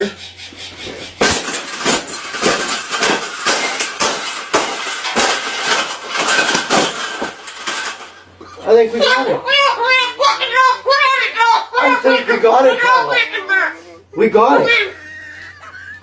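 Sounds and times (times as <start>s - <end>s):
hard blows and crashes: 0.7s - 8.4s.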